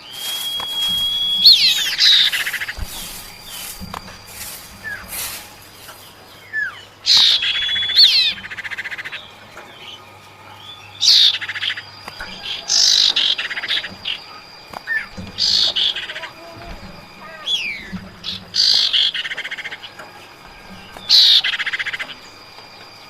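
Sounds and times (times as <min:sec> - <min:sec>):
short whistled bird notes: 0:00.0 - 0:08.4
harsh rattling bird calls: 0:00.0 - 0:23.0.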